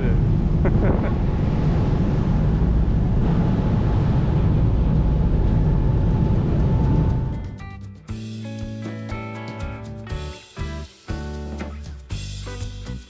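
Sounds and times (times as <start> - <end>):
ferry engine drone: 0.0 - 7.9
rushing wind and water: 0.2 - 7.5.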